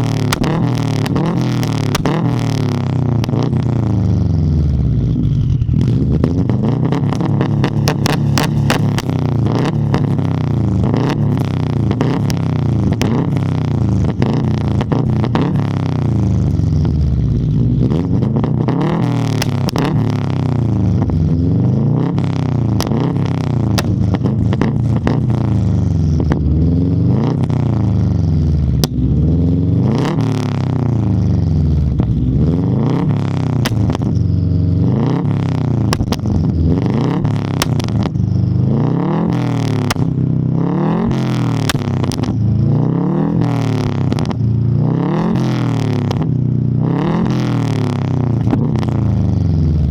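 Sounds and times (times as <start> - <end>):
car engine revving through gears: 0.0 - 49.9.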